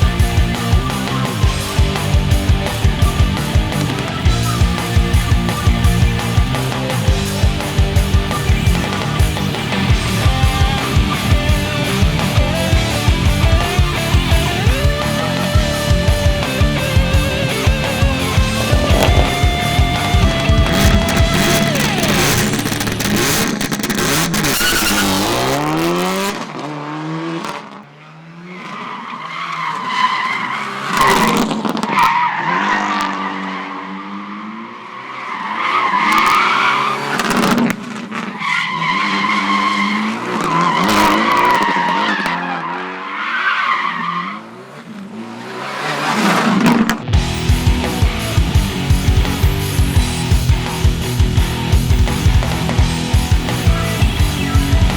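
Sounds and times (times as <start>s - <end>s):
tyres squealing: 0.0s - 25.4s, 45.6s - 54.9s
rock music: 0.0s - 26.3s, 35.4s - 42.2s, 46.2s - 54.9s
engine revving: 0.0s - 28.8s, 30.2s - 43.2s, 44.3s - 54.9s.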